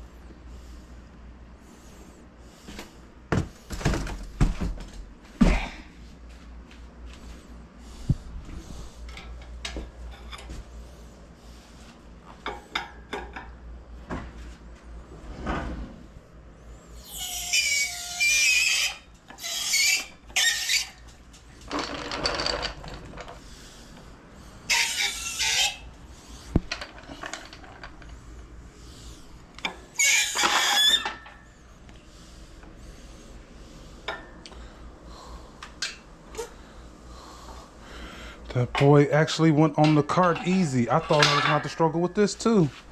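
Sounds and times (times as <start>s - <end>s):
metal scraping and squealing: 17.0s - 21.2s, 24.7s - 25.9s, 30.0s - 31.5s, 39.8s - 42.1s.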